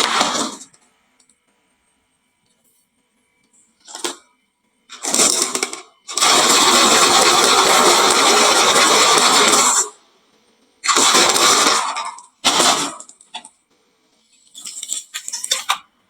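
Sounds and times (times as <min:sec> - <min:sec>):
marbles rattling down wooden run: 0:05.0 - 0:09.9.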